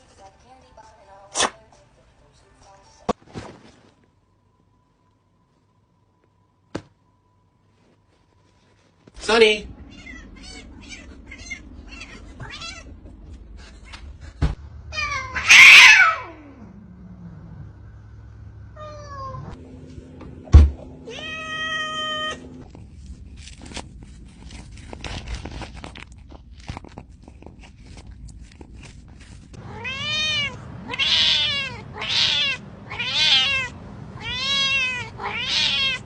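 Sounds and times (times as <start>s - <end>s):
cat meowing: 9.7s - 13.0s, 14.9s - 16.6s, 21.1s - 22.5s, 29.6s - 36.0s.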